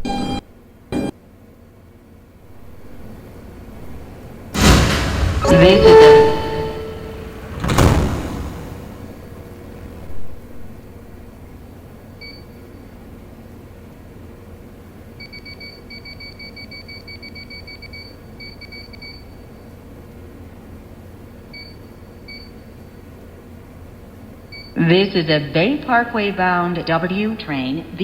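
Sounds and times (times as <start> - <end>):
subway car low hum: 1.4 - 12.2
short electronic beeps: 5.4 - 7.5.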